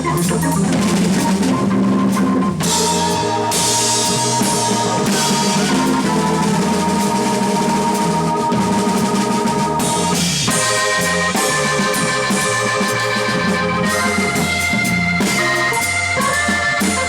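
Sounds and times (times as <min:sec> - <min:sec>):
bass line: 0:00.0 - 0:17.0
drum kit with cymbals: 0:00.0 - 0:17.0
organ chords: 0:00.0 - 0:17.0.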